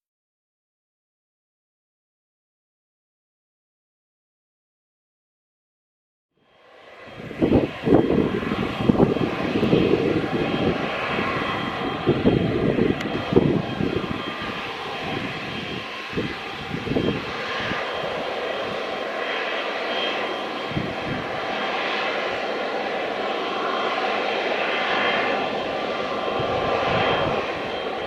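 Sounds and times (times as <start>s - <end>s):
jet engines running: 6.5s - 28.0s.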